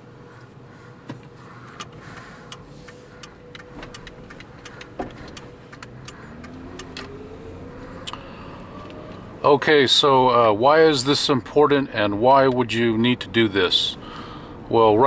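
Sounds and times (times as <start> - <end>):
car engine and tyre drone: 0.0 - 15.0
sharp clicks and ticks: 1.8 - 7.1.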